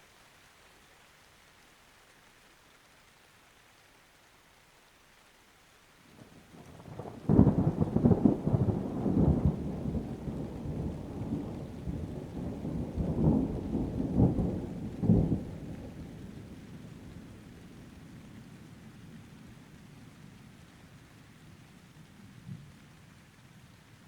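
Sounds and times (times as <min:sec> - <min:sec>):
faint rain hiss: 0:00.0 - 0:24.0
thunder crack and rumble: 0:06.6 - 0:16.3.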